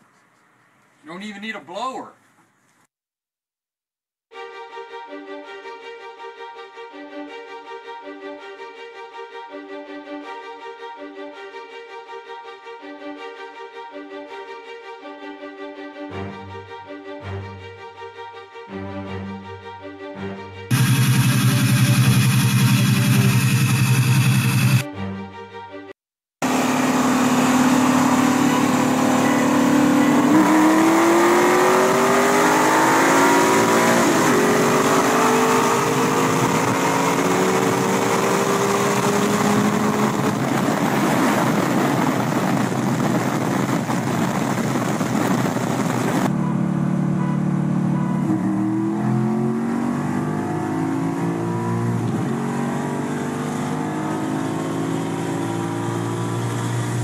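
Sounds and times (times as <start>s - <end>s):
car engine at full throttle: 20.7s - 24.9s, 26.4s - 57.0s.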